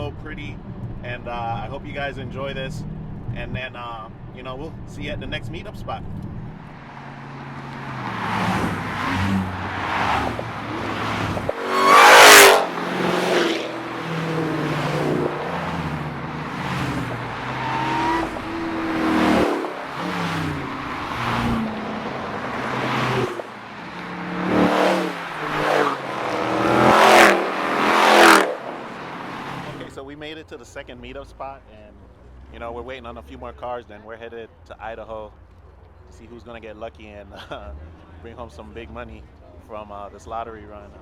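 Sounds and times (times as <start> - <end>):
cars driving past: 6.0 - 30.1, 37.2 - 41.0.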